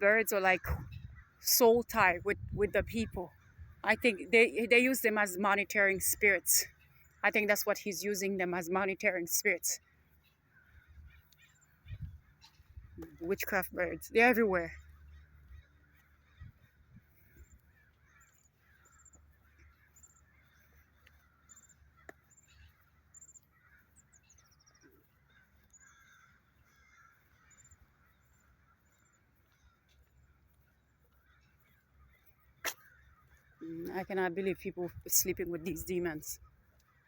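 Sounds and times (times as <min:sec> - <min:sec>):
bird chirping: 0:00.0 - 0:37.0.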